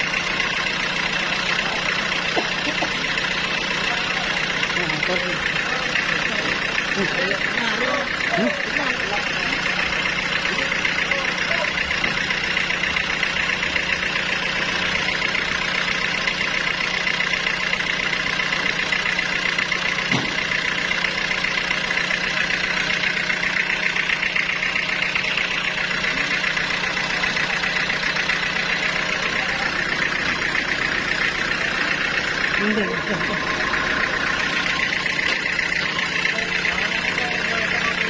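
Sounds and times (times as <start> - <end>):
sawmill machinery hum: 0.0 - 38.0
machinery high whine: 22.8 - 38.0.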